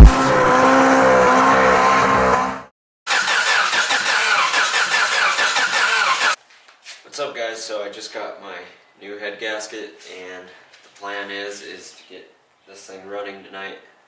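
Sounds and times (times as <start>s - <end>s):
car engine running: 0.0s - 6.4s.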